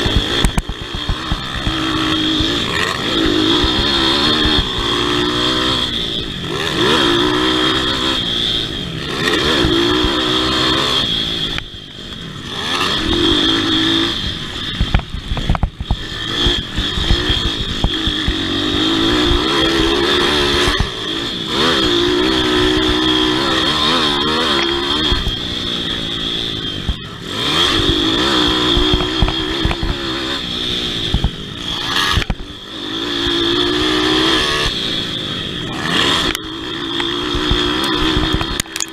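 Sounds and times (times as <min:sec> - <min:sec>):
motorbike engine revving: 0:00.0 - 0:38.9.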